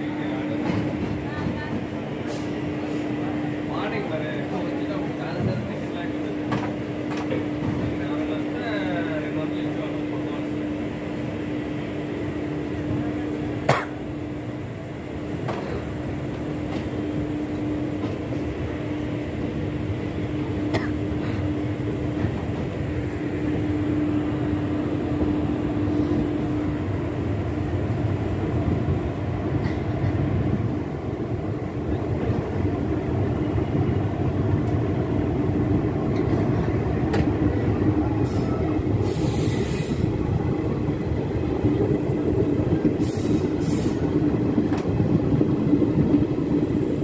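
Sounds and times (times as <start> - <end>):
train running rumble and hum: 0.0 - 47.0.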